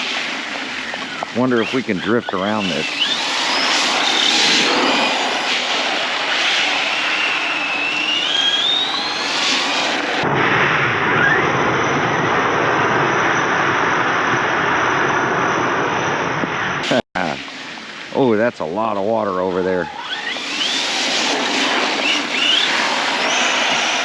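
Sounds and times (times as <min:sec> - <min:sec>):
tyres hissing on wet ground: 0:00.0 - 0:10.2, 0:16.8 - 0:24.0
electric motor whining: 0:00.8 - 0:10.2, 0:19.8 - 0:24.0.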